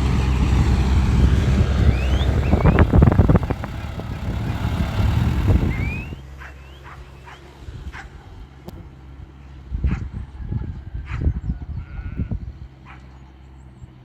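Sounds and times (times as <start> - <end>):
tractor diesel engine running: 0.0 - 6.3.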